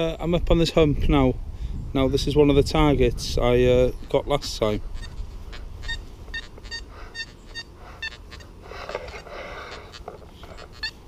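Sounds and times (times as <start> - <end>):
metal detector beeps: 5.0 - 11.0.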